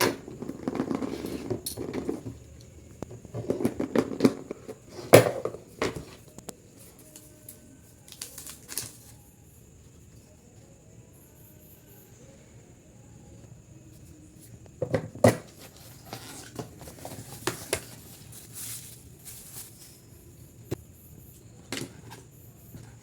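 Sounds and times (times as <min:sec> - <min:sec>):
packaging rustling: 0:08.1 - 0:09.0, 0:15.5 - 0:20.1.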